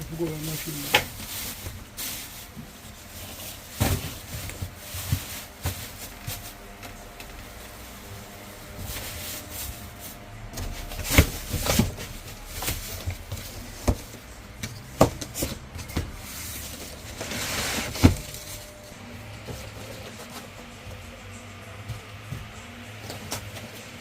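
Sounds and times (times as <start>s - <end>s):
knocks of things being handled: 10.5s - 17.0s.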